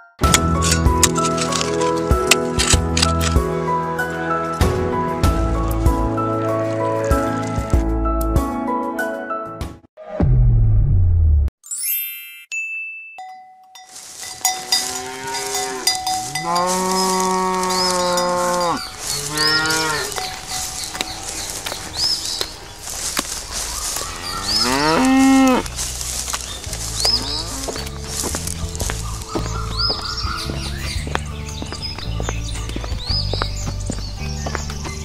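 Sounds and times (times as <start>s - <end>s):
cowbell: 12.2s - 17.3s, 18.0s - 21.4s
birds chirping: 14.1s - 35.0s
cow mooing: 14.6s - 22.6s, 24.1s - 25.7s, 27.1s - 27.9s.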